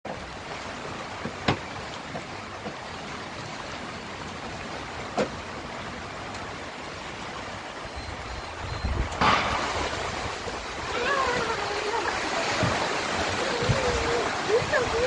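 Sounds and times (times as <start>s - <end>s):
heavy rain hiss: 5.7s - 15.0s.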